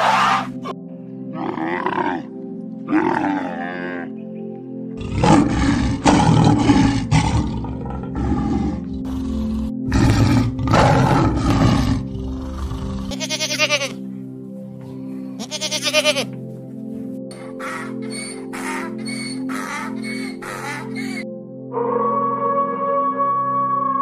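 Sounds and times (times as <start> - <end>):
background music: 0.0 - 24.0
big cats roaring: 2.9 - 4.1, 5.0 - 13.1
camel calls: 15.4 - 16.3.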